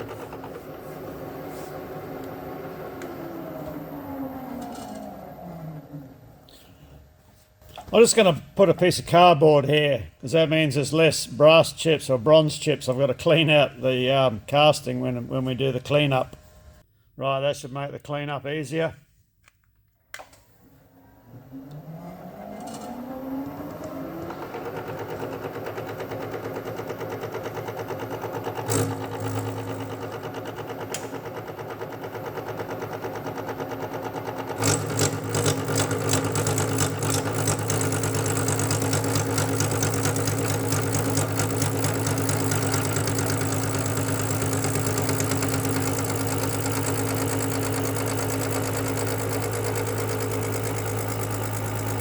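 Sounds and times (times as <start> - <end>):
spindle motor humming: 21.4 - 52.0
lathe cutter rattling on metal: 24.6 - 52.0.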